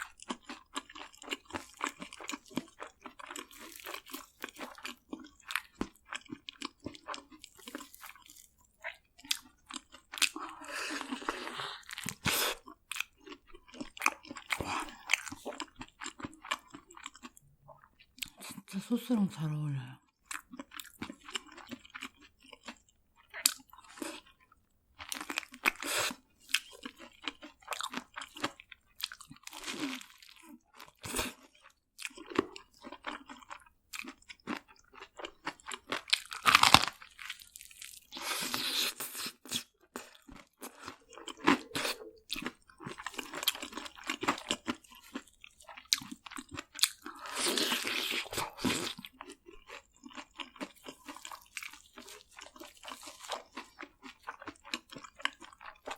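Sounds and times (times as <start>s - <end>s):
crunching fried food: 0.0s - 18.6s, 20.2s - 55.9s.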